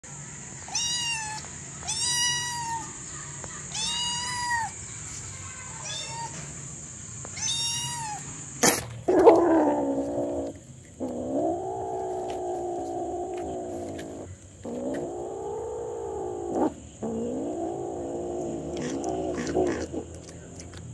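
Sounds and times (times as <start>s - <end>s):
kitten meowing: 0.7s - 3.0s, 3.7s - 4.7s, 5.8s - 6.4s, 7.4s - 8.3s.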